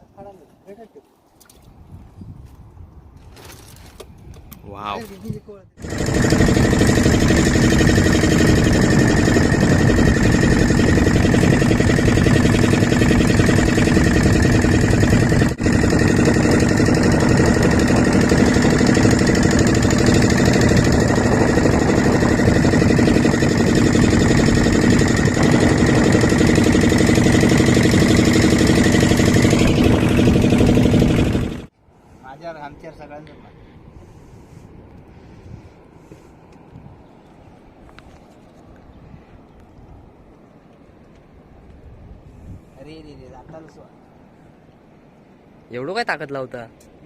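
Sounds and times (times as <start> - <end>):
loud mechanical drone: 5.8 - 31.7.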